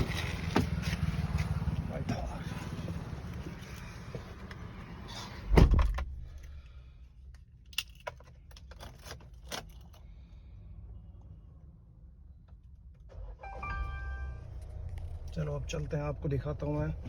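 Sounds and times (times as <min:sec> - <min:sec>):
car door shutting: 0:05.4 - 0:06.2.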